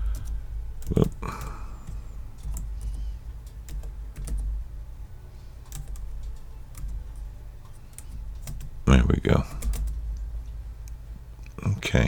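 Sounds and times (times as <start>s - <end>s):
typing on keyboard: 0.0s - 4.5s, 5.7s - 8.7s, 9.6s - 10.0s
low steady hum: 0.0s - 12.0s.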